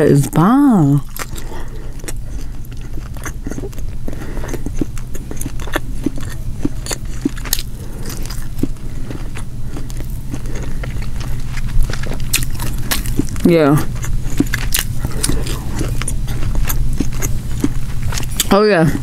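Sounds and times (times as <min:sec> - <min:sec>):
steady low hum: 0:00.0 - 0:19.0
close chewing: 0:00.2 - 0:19.0.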